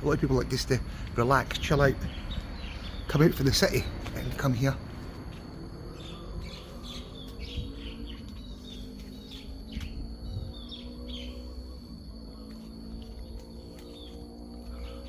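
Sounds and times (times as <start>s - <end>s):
faint low hum: 0.0s - 15.0s
small birds chirping: 0.0s - 15.0s.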